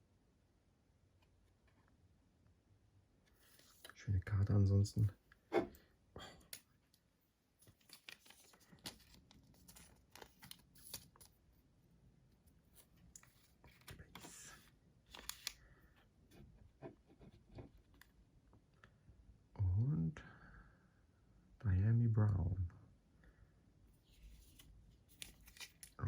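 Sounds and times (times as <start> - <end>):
cards rustling: 3.4 - 4.0, 7.6 - 11.3, 12.6 - 15.9, 24.1 - 26.0.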